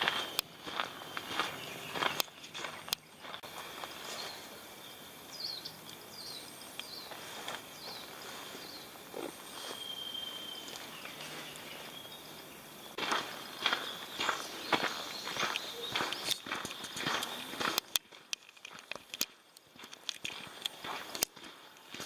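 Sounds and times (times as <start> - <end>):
high bird chirps: 0.0 - 3.4, 4.0 - 17.7
footsteps on a path: 0.0 - 4.7, 6.2 - 22.0
woodland ambience: 0.0 - 22.0.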